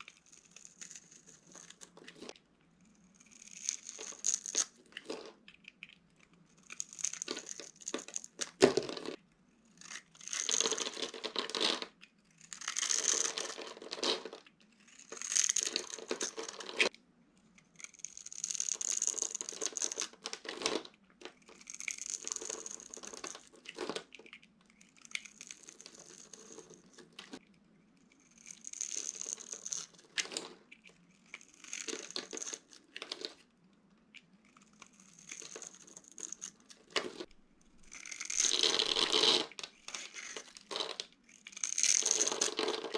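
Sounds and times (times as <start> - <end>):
soap cubes crunching by hand: 6.6 - 9.2, 9.8 - 16.8, 31.3 - 33.3, 34.5 - 42.9.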